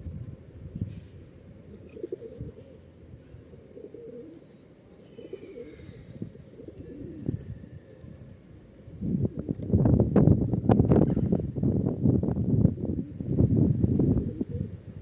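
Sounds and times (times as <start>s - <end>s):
pigeons cooing: 1.6s - 8.1s, 12.8s - 15.0s.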